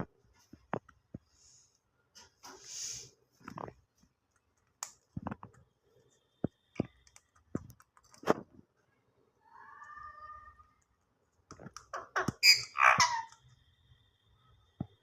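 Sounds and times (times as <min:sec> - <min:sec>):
short hiss: 0:02.4 - 0:03.1.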